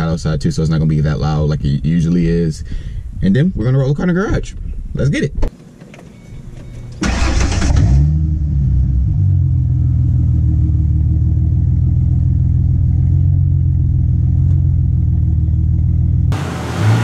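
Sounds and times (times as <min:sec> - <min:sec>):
car engine starting and idling: 0:06.6 - 0:17.0.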